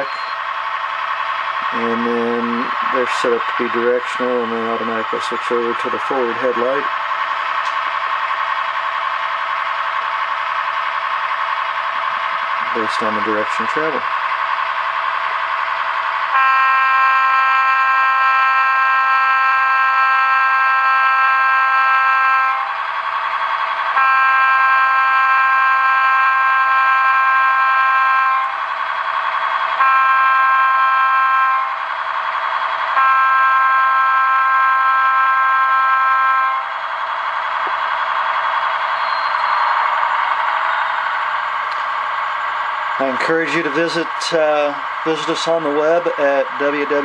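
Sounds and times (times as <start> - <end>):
train running sound: 0.0 - 47.0
train horn blasts through speaker: 16.3 - 22.8, 24.0 - 28.6, 29.8 - 31.8, 33.0 - 36.7.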